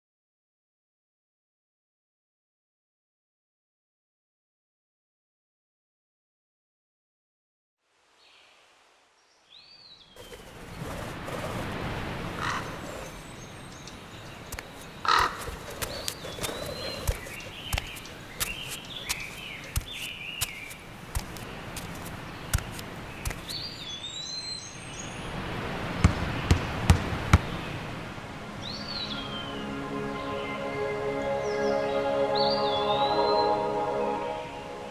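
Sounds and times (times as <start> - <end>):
outdoor background hiss: 7.8 - 34.9
birds chirping and calling: 12.3 - 25.2
sharp clicks or taps: 14.5 - 23.6.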